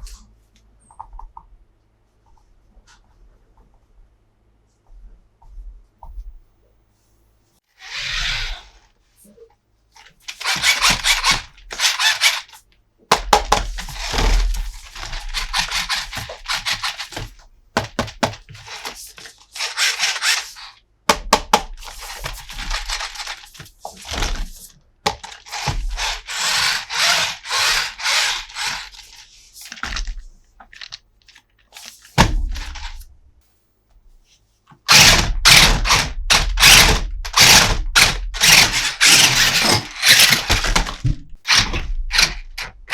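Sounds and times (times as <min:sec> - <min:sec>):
plastic toy pieces clattering: 0:10.2 - 0:20.8, 0:21.8 - 0:33.0, 0:34.9 - 0:42.4.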